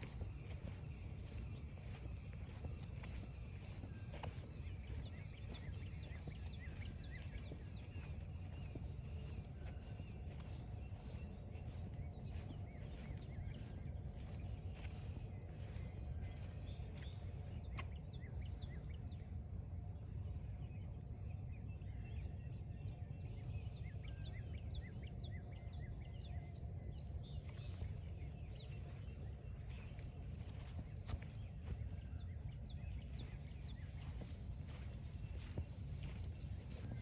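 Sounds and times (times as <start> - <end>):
footsteps crunching on trail: 0.0 - 18.7, 26.6 - 37.0
steady low rumble: 0.0 - 20.2, 24.0 - 37.0
songbirds chirping: 0.0 - 37.0.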